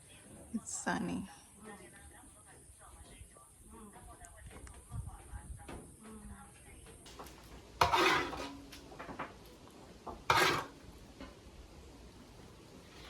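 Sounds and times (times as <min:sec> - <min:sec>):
kitchenware clanking: 0:07.1 - 0:11.4.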